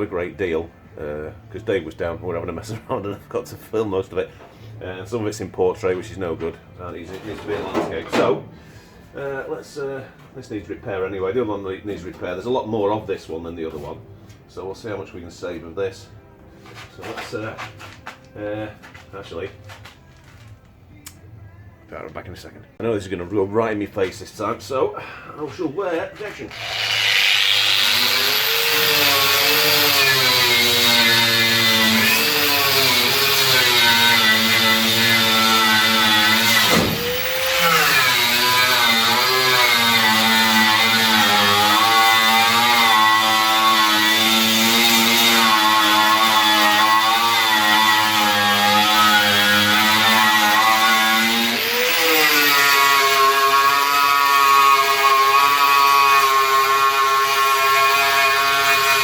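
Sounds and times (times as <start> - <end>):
angle grinder whining: 26.4 - 59.0.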